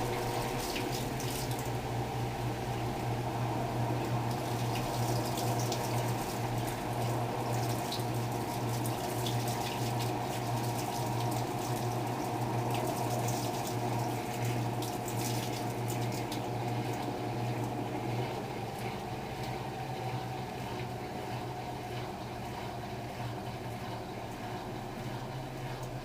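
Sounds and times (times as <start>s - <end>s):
water running in washing machine: 0.0s - 26.0s.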